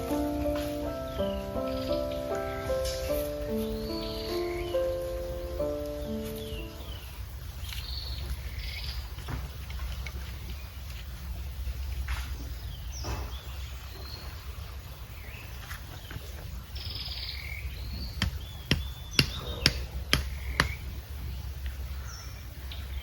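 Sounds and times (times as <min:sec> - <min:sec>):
small birds chirping: 0:00.0 - 0:23.0
sharp knocks: 0:18.2 - 0:20.9.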